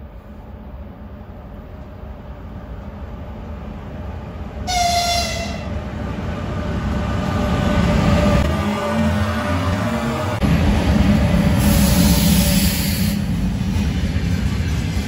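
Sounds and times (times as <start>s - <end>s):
freight train rumbling past: 0.0s - 15.0s
train horn blast: 4.7s - 5.7s.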